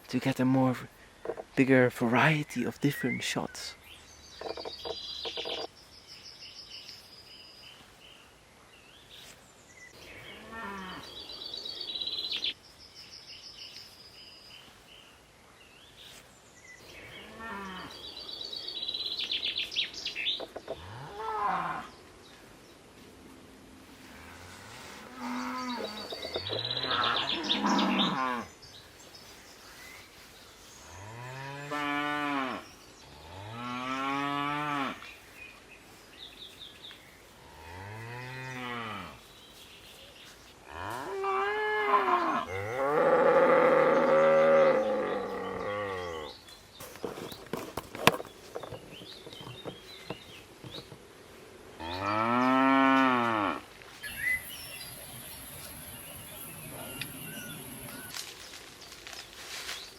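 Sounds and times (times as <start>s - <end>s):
cows mooing: 24.2s - 28.5s, 40.7s - 46.3s, 51.8s - 53.6s.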